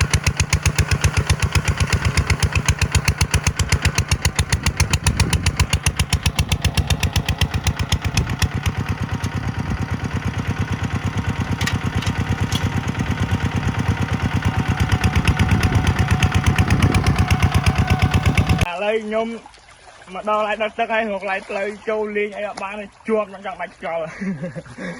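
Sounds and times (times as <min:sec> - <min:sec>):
tractor diesel engine chugging: 0:00.0 - 0:18.7.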